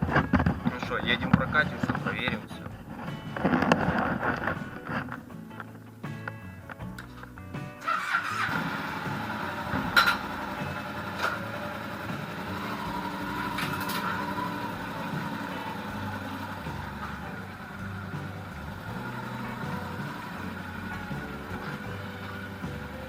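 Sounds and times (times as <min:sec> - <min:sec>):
motorcycle engine running: 0:06.9 - 0:23.0.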